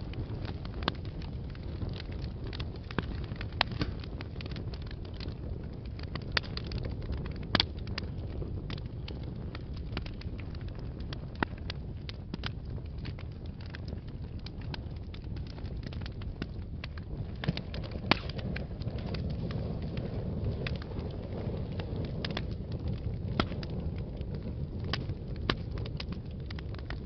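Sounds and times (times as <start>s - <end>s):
wood fire burning: 0.0s - 27.0s.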